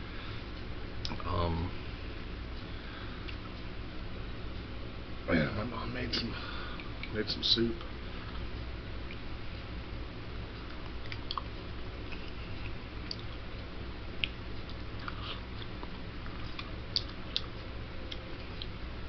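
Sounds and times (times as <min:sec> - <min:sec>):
steady low hum: 0:00.0 - 0:19.0
person chewing: 0:10.6 - 0:13.4, 0:14.2 - 0:18.7.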